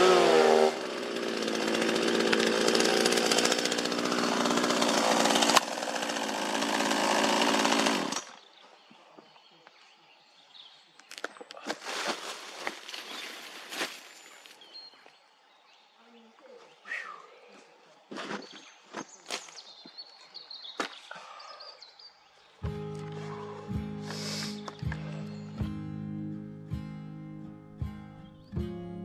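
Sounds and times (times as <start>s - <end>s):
chainsaw cutting wood: 0.0s - 8.3s, 24.0s - 25.2s.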